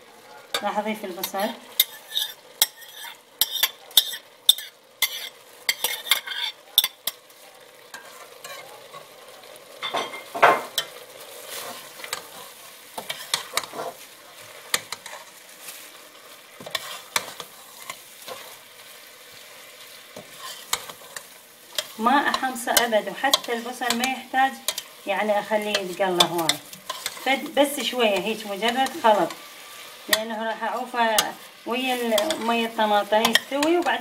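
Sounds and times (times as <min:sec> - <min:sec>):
meat and onion sizzling in oil: 0:00.0 - 0:34.0
metal spoon scraping a pot: 0:01.2 - 0:07.2, 0:10.1 - 0:14.1, 0:16.6 - 0:18.6, 0:20.2 - 0:24.9, 0:25.7 - 0:30.4.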